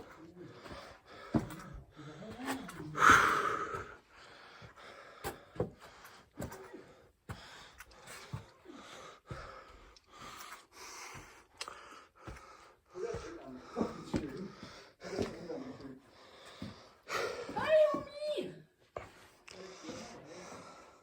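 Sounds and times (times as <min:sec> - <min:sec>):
knocks and scuffs of movement: 0:00.0 - 0:03.0, 0:03.8 - 0:20.1
person breathing hard: 0:00.5 - 0:17.6, 0:19.0 - 0:21.0.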